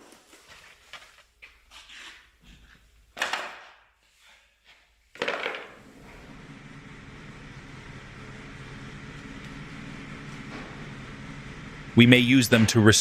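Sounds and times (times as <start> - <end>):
low machine hum: 5.8 - 13.0.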